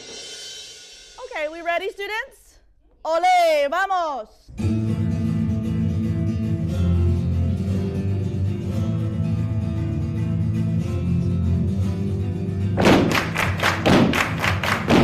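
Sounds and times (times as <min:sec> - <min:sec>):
flamenco guitar music: 0:04.5 - 0:15.0.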